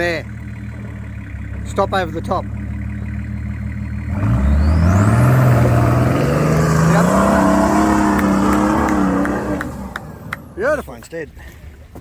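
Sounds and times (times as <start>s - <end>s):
engine revving hard: 2.7s - 10.6s.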